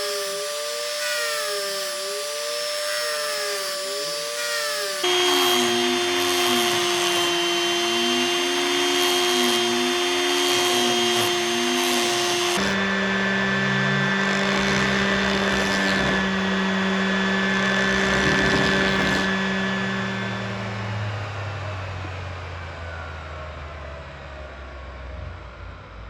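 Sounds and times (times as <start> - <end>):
power tool motor running: 0.0 - 21.6.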